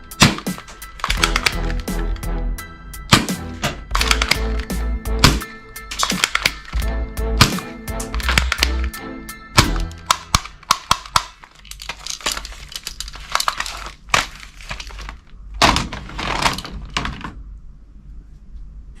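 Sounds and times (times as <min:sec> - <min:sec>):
rustling and crinkling: 0:10.4 - 0:17.4.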